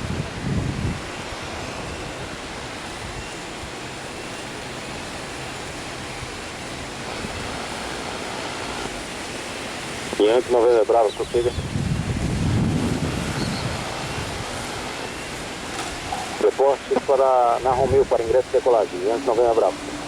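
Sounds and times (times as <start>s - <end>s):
wind buffeting on microphone: 0.0s - 4.0s, 11.0s - 16.4s, 17.0s - 20.0s
heavy rain hiss: 0.0s - 20.0s
wind: 0.0s - 20.0s.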